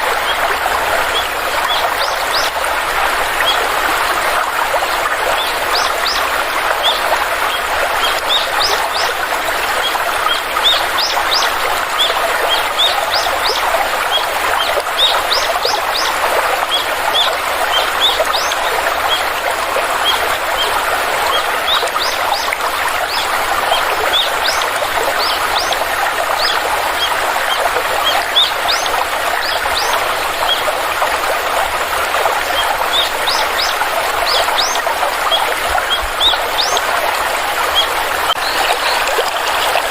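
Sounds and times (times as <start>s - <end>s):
flowing stream: 0.0s - 39.9s.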